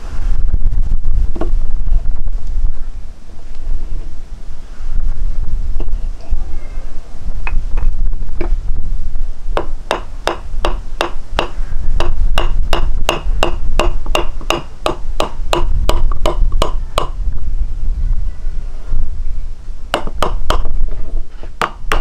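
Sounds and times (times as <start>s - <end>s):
steady low rumble: 0.0s - 22.0s
ringing knocking strikes: 9.6s - 17.2s.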